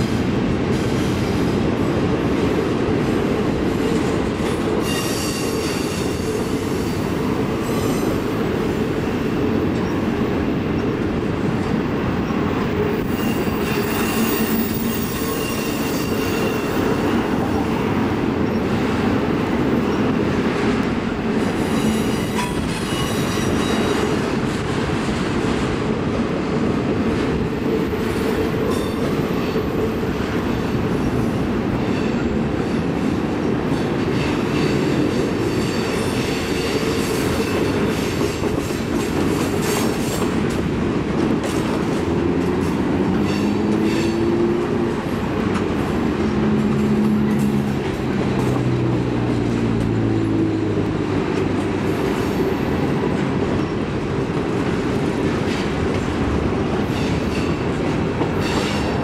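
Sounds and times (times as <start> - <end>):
steel wheels rumbling on rail: 0.0 - 59.0
high wheel squeals: 13.0 - 17.0.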